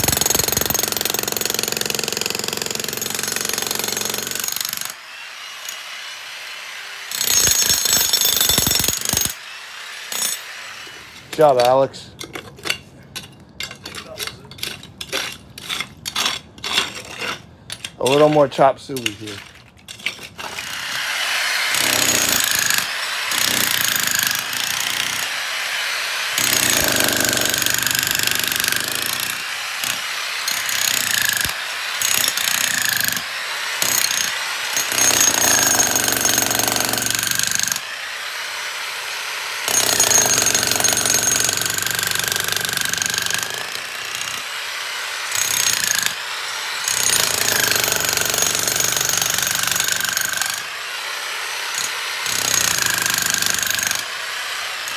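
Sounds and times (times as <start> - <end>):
jackhammer breaking concrete: 0.0 - 4.9, 7.1 - 9.4, 21.7 - 25.4, 26.4 - 37.8, 39.7 - 44.5, 45.3 - 46.2, 46.8 - 50.8, 51.7 - 54.2.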